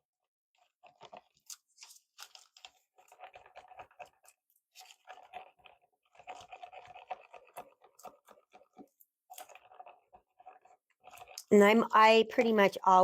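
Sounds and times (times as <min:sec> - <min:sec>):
stick scraping plastic cup: 0:00.6 - 0:12.7.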